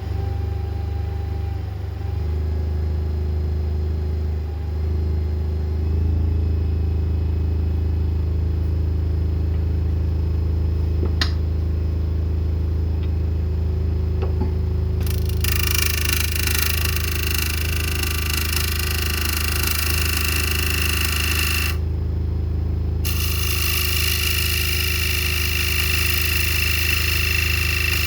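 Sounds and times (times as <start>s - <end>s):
wood lathe motor hum: 15.0s - 21.8s, 23.0s - 28.0s.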